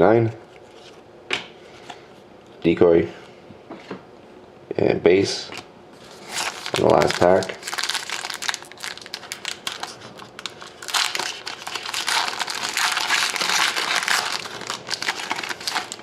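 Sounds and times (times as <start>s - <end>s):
plastic wrapper tearing and crinkling: 6.0s - 16.0s.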